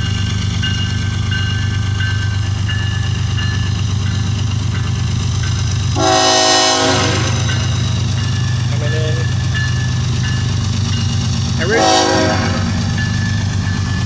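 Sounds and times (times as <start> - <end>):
crossing bells dinging: 0.0 - 14.0
diesel locomotive engines droning: 0.0 - 14.0
locomotive air horn chord: 6.0 - 7.4, 11.6 - 12.8.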